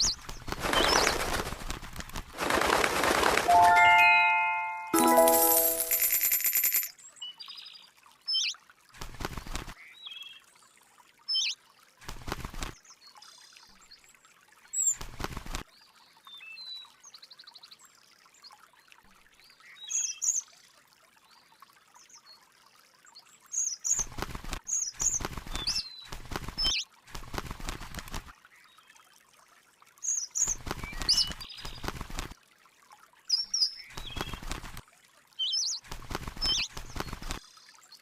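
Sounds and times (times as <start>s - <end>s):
small birds chirping: 0.0s - 1.6s, 30.0s - 32.0s, 33.3s - 34.6s, 35.4s - 38.0s
rustling noise bursts: 0.0s - 4.2s.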